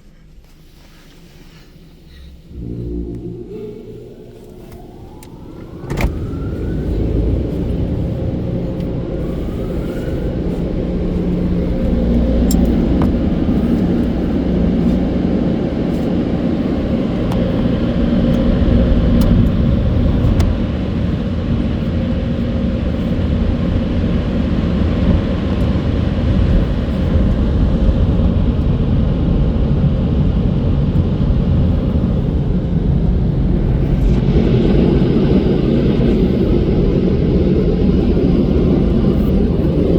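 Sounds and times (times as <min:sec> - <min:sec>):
dryer blowers roaring: 0:02.2 - 0:39.9.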